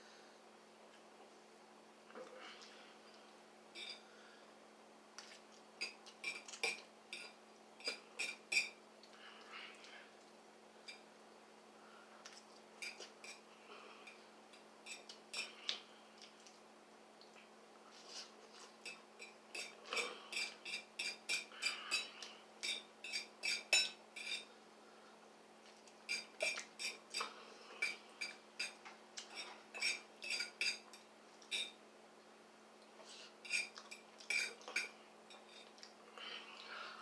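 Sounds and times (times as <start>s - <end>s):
utensil clinking against a bowl: 5.2s - 8.8s, 12.8s - 13.4s, 14.1s - 15.6s, 18.6s - 24.5s, 26.1s - 31.8s, 33.4s - 35.8s.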